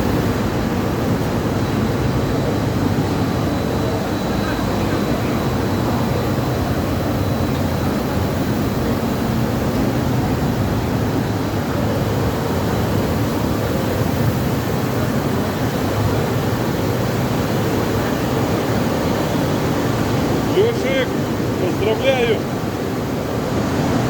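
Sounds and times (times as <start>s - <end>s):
machinery drone: 0.0s - 13.0s
faint high whine: 0.0s - 24.0s.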